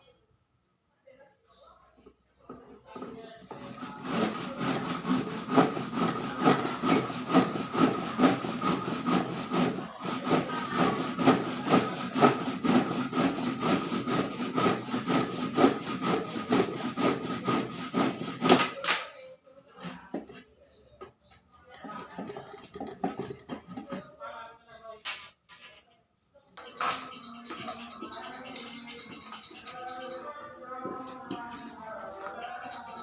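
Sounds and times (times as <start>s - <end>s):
hand saw cutting wood: 3.5s - 18.8s.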